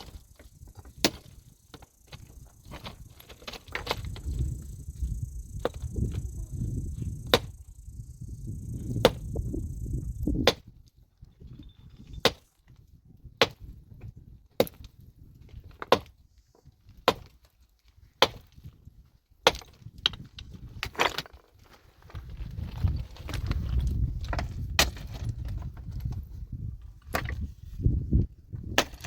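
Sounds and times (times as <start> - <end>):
low rumble: 2.3 - 10.3.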